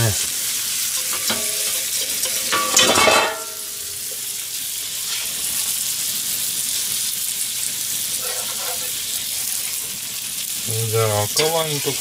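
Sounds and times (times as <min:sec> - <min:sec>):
patties sizzling in a frying pan: 0:00.0 - 0:12.0
metal spatula scraping a pan: 0:00.9 - 0:04.3, 0:04.9 - 0:05.7, 0:08.0 - 0:09.9.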